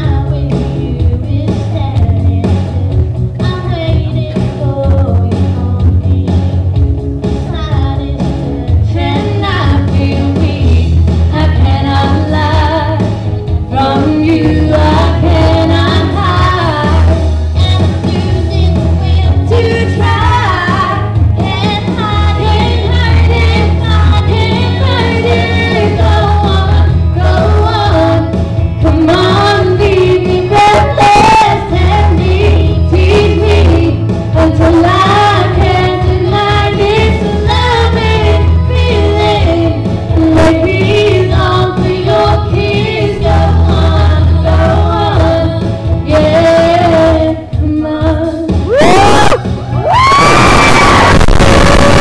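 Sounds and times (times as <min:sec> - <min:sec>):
girls singing pop duet: 0:00.0 - 0:06.7, 0:07.4 - 0:50.2
backing track with heavy bass: 0:00.0 - 0:52.0.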